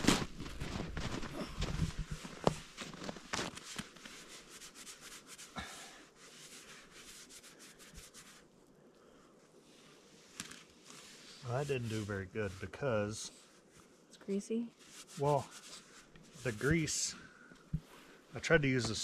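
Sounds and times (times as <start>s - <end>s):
dish scrubbed with snow: 10.2s - 13.6s, 14.7s - 17.3s.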